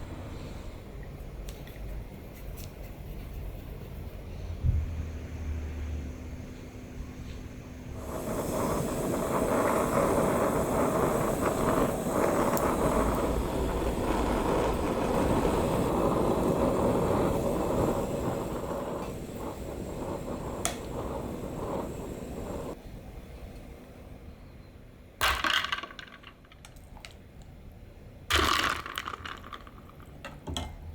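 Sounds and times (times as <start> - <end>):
steady rushing noise: 8.0 - 22.8.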